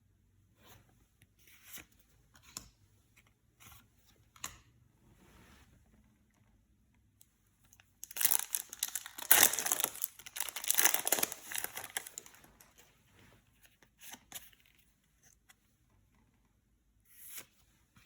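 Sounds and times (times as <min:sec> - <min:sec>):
plastic packaging crinkling: 0:08.0 - 0:12.8.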